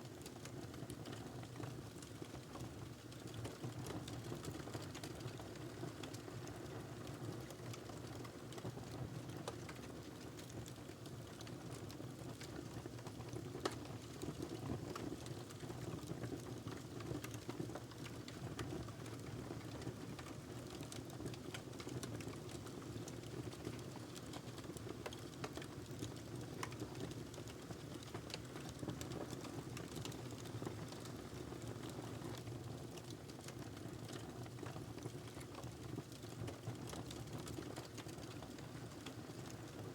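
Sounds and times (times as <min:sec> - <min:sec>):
wood fire burning: 0:12.3 - 0:39.8.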